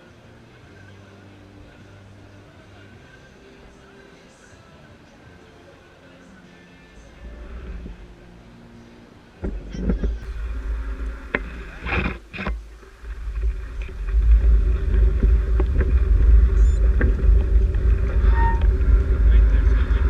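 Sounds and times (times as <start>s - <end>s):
bicycle rumble on road: 7.2s - 8.2s, 9.4s - 20.0s
wind buffeting microphone: 9.4s - 20.0s.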